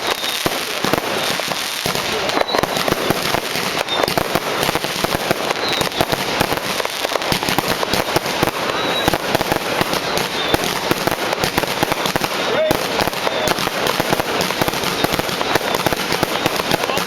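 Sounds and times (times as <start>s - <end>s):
fireworks and firecrackers banging: 0.0s - 17.0s.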